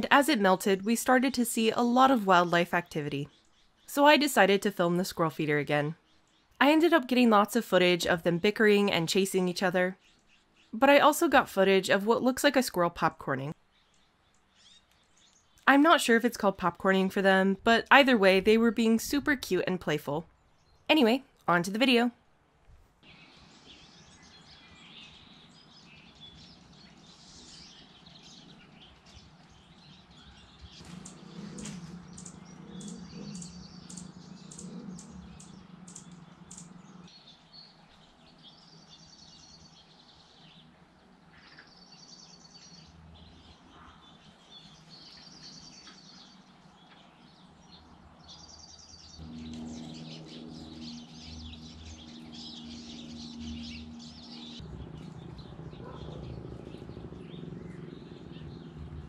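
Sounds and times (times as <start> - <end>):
bird chirps: 23.1 - 40.7, 41.3 - 59.0
low steady hum: 28.5 - 38.8, 49.1 - 59.0.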